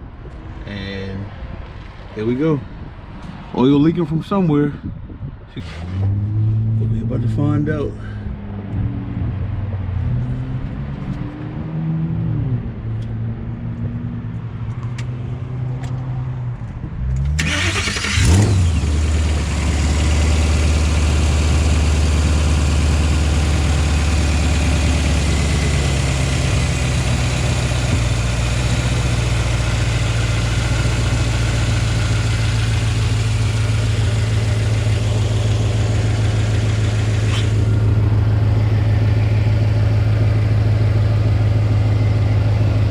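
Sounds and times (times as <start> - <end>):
car engine starting and idling: 17.1 - 42.9.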